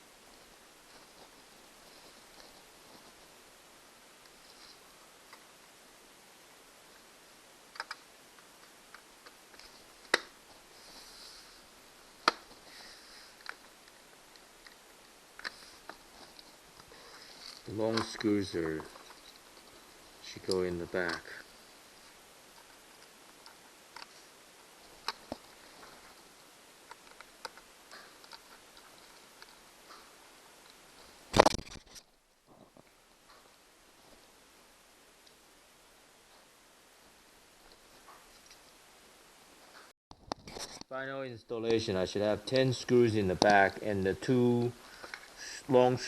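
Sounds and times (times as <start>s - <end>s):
small screws and parts clicking: 7.7s - 10.2s.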